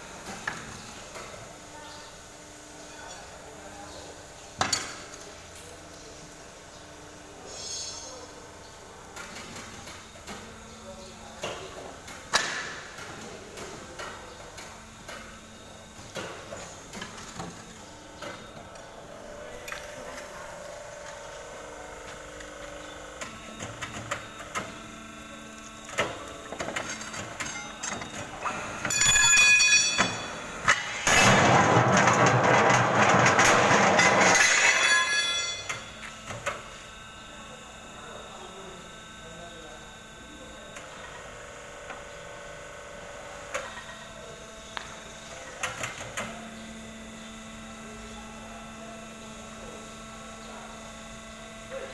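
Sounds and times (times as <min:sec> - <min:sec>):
tyre-changing machine running: 0:25.7 - 0:36.6
metal clanking against wheel: 0:28.4 - 0:35.8.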